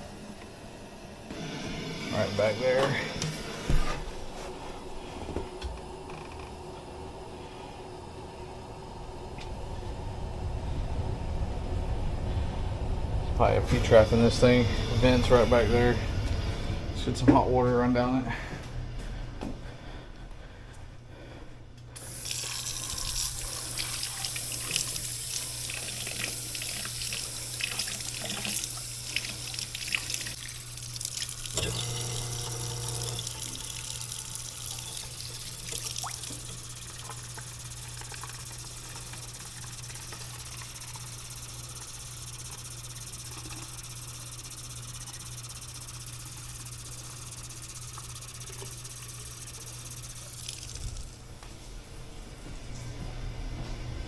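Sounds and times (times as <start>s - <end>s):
water pouring into drain: 22.0s - 41.2s, 50.2s - 51.1s.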